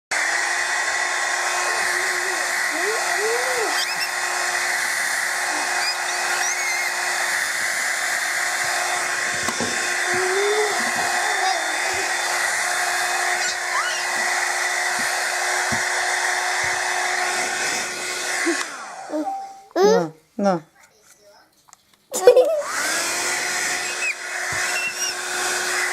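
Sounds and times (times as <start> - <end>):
hair dryer whining: 0.1 - 19.6, 22.2 - 25.9
rising and falling vocal sounds: 1.6 - 4.0.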